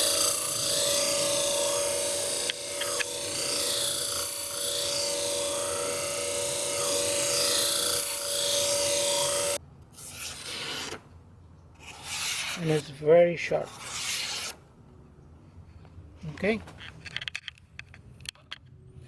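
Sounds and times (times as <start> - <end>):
sharpening machine motor hum: 0.0 - 9.6.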